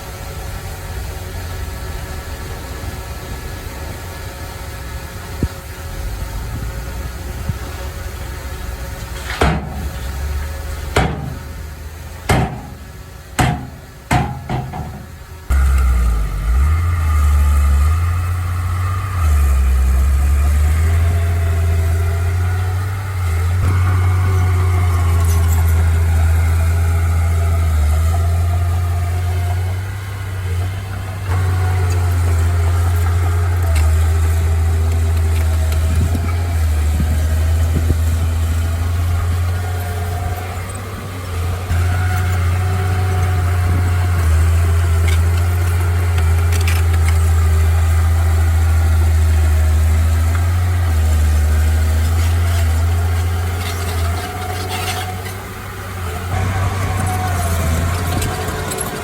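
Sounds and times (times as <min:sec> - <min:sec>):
heavy vehicle engine rumbling: 0:00.0 - 0:59.0
sharp knocks and clanks: 0:09.2 - 0:10.2, 0:10.9 - 0:15.3.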